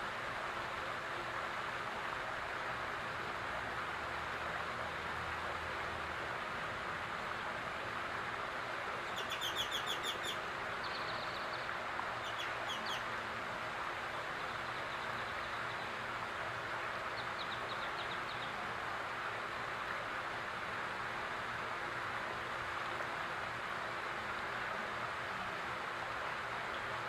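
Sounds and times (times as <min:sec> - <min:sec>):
fountain water running: 0:00.0 - 0:27.0
songbird chirping: 0:09.1 - 0:13.1.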